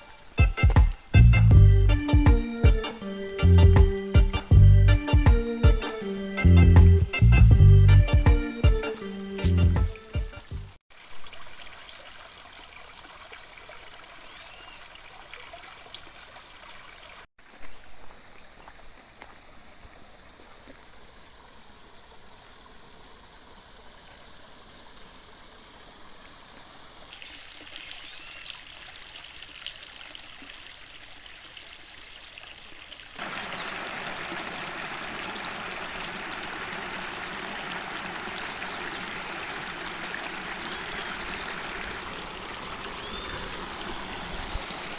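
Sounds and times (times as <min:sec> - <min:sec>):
stream trickling over stones: 0:10.9 - 0:44.9.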